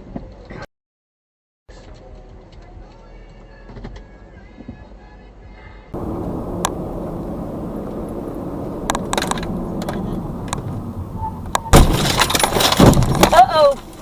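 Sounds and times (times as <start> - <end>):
car road and engine noise: 1.7 - 14.0
car collision crash: 11.5 - 13.6.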